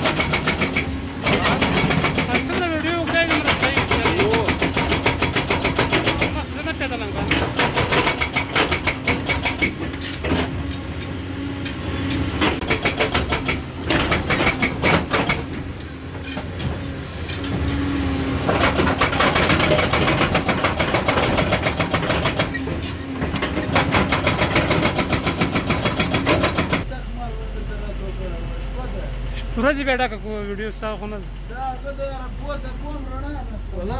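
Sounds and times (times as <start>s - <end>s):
hydraulic breaker hammering: 0.0s - 26.9s
diesel engine running: 0.0s - 33.9s.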